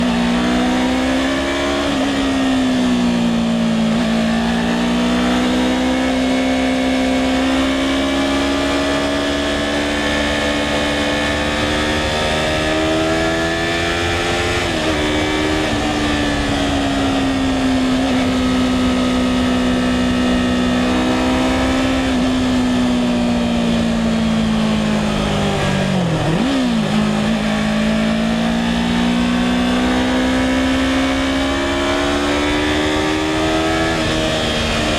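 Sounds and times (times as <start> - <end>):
motorcycle engine running: 8.6 - 34.9.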